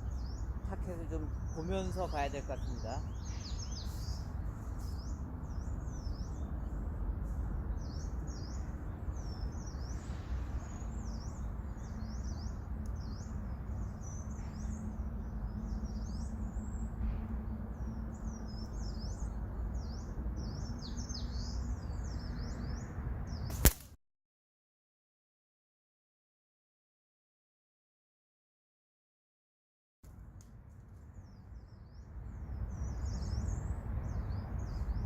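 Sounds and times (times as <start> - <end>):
low outdoor rumble: 0.0 - 23.4
small birds chirping: 0.0 - 23.8, 30.8 - 35.0.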